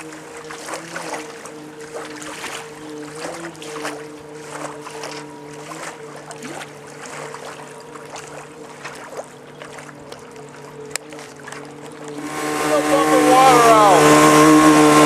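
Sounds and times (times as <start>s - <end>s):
motor drone: 0.0s - 15.0s
water splashing against hull: 0.0s - 15.0s.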